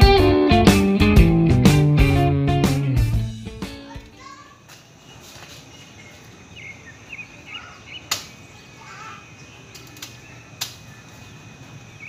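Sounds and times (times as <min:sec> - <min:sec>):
birds chirping: 0:03.7 - 0:12.0
sharp clicks: 0:08.1 - 0:08.4, 0:09.7 - 0:10.8.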